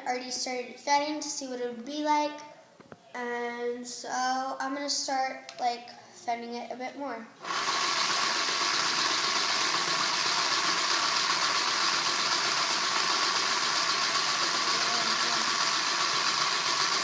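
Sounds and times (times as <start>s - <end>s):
small toy motor whirring: 7.4s - 17.0s.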